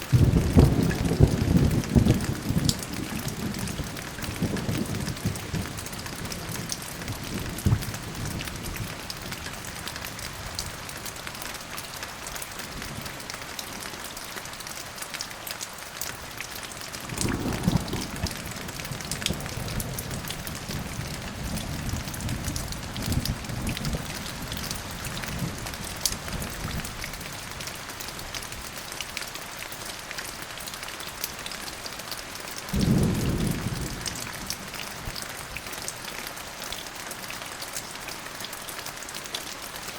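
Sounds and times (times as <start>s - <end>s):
rain falling: 0.0s - 39.9s
thunder rumbling: 0.1s - 9.0s, 17.0s - 24.6s, 32.7s - 34.8s.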